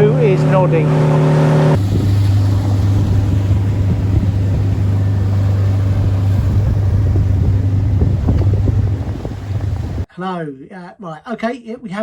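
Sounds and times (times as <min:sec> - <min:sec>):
boat engine droning: 0:00.0 - 0:10.1.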